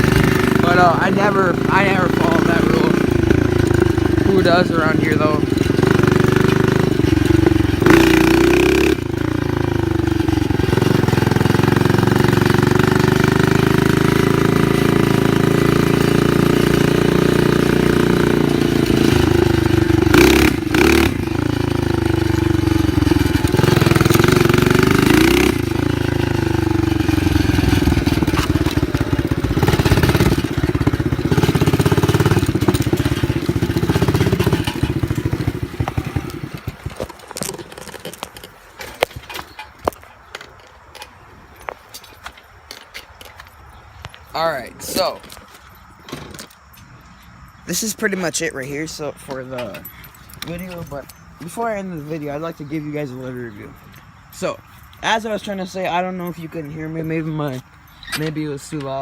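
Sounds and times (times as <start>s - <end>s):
dirt bike engine revving: 0.0s - 38.3s.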